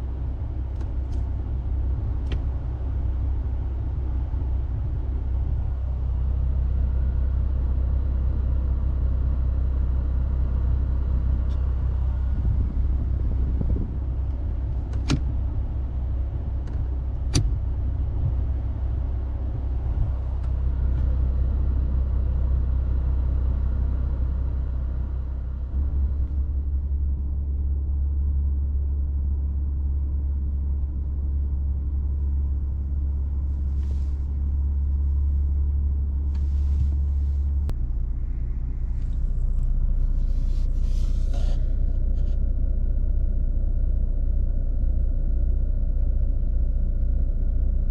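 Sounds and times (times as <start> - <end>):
car engine and road rumble: 0.0 - 47.9.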